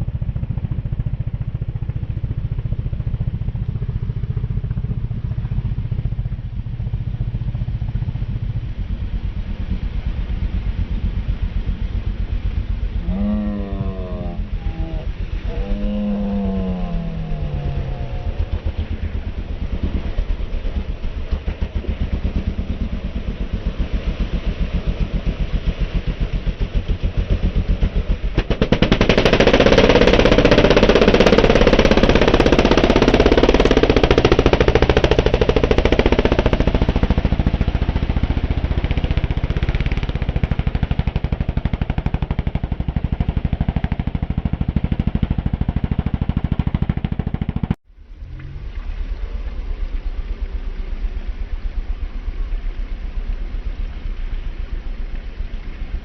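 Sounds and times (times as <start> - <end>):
racing engine revving: 27.4 - 48.7.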